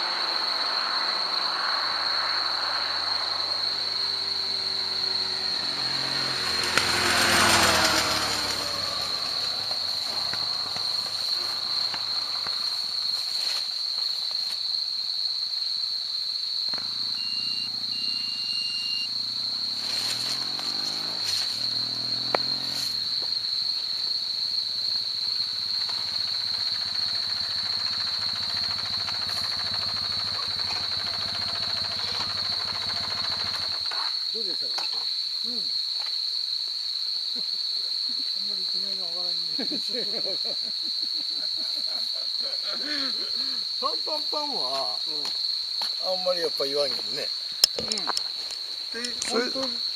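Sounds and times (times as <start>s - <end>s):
vehicle passing: 0.0s - 12.8s, 16.8s - 33.9s
engine note rising and falling: 3.1s - 10.7s, 16.8s - 23.2s.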